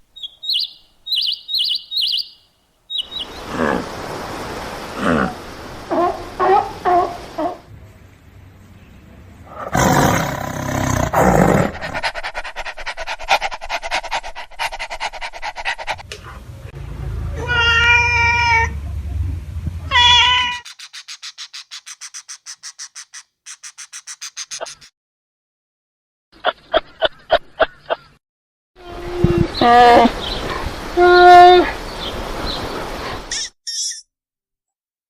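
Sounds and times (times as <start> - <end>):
animal drawn-out pitched calls: 0.2 - 4.0, 20.0 - 24.9
animal rough call: 9.5 - 12.5
soft quick pulses: 20.7 - 24.9.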